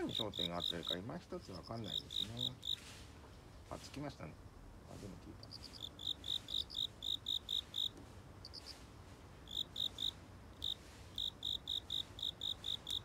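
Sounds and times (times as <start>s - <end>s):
cricket chirping: 0.0s - 2.8s, 5.4s - 8.8s, 9.4s - 13.0s.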